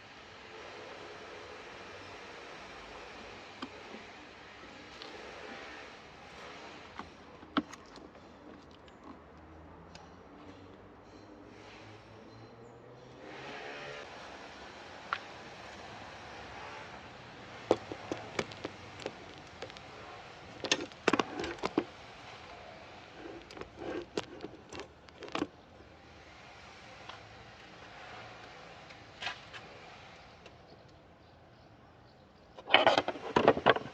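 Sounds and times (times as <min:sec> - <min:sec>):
hand tools clicking and knocking: 0:17.5 - 0:25.6.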